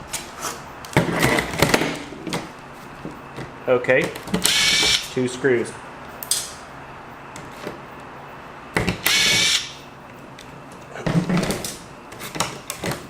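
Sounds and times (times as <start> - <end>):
electric screwdriver whirring: 4.4 - 5.0, 9.0 - 9.7.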